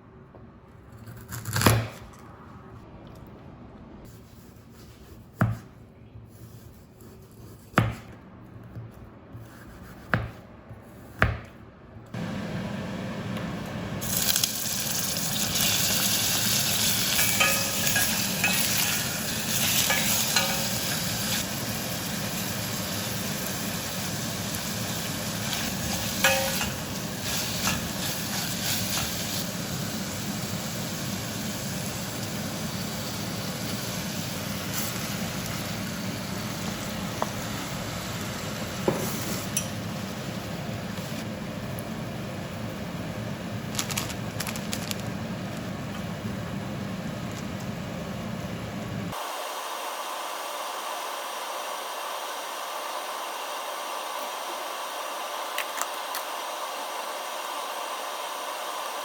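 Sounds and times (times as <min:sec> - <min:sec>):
food sizzling in a frying pan: 0:14.0 - 0:40.5.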